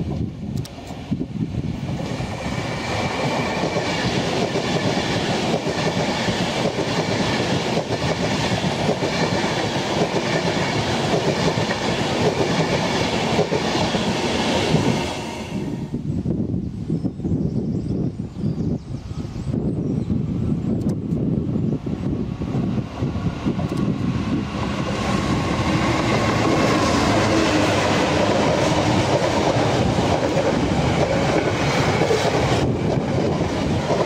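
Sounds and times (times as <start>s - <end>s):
train wheels rushing on rail: 0.0s - 16.1s, 20.2s - 34.0s
sharp clicks: 0.5s - 1.0s, 20.8s - 21.2s, 23.6s - 23.9s.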